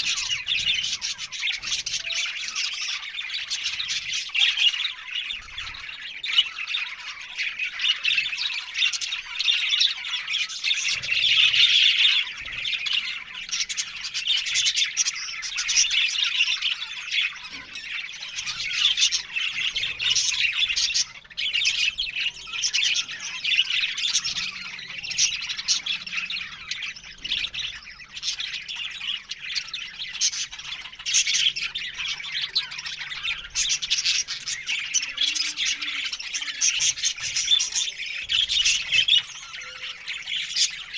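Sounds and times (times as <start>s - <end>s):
budgerigars chattering: 0.0s - 40.9s.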